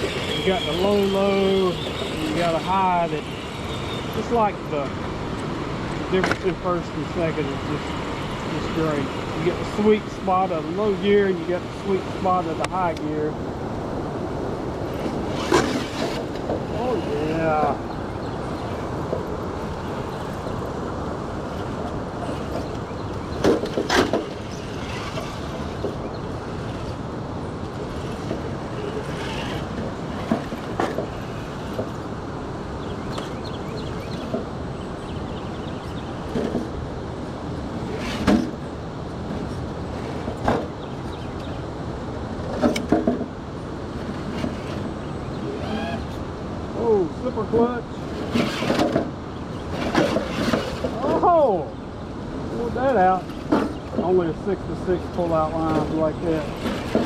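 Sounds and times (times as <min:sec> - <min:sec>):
river water rushing: 0:00.0 - 0:32.8.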